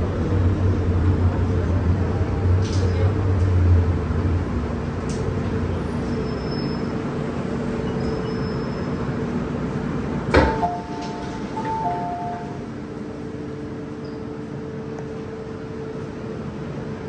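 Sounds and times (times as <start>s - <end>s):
train interior hum and rumble: 0.0s - 17.0s
two-tone electronic chime: 10.6s - 12.6s.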